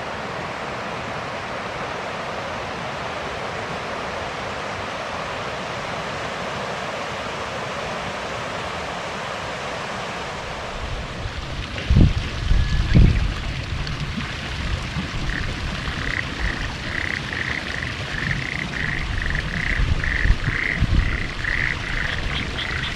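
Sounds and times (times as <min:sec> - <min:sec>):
wind rumble on microphone: 0:10.6 - 0:22.9
chorus of frogs calling: 0:15.1 - 0:22.9.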